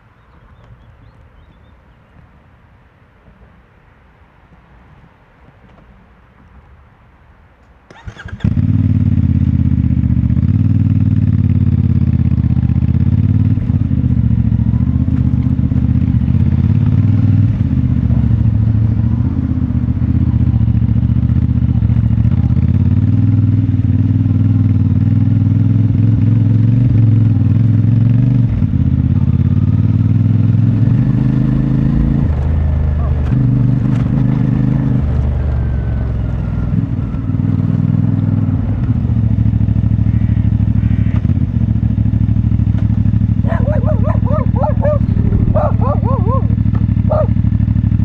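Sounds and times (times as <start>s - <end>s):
motorcycle engine running: 8.1s - 48.0s.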